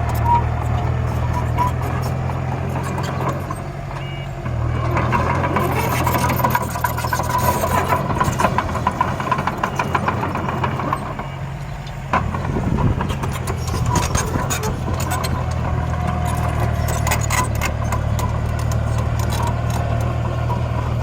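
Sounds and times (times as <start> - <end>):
rapid clattering rattle: 12.1 - 21.0.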